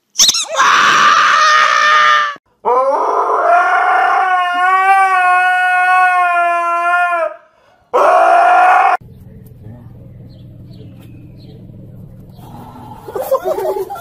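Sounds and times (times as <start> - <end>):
husky howling: 0.5 - 9.0.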